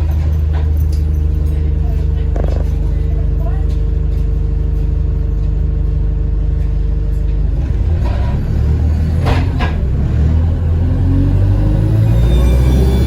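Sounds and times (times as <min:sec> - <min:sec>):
diesel bus engine revving: 0:07.5 - 0:13.0.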